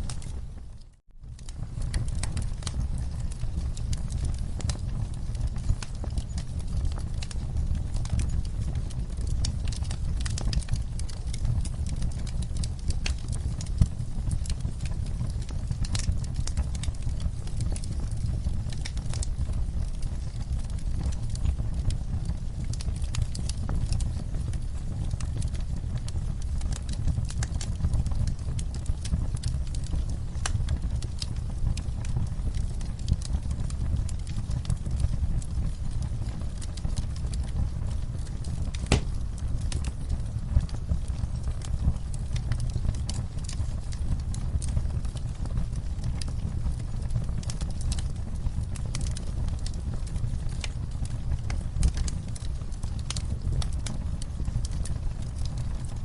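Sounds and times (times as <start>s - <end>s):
fire pops and snaps: 0.0s - 56.0s
low rumble of burning flames: 0.0s - 56.0s.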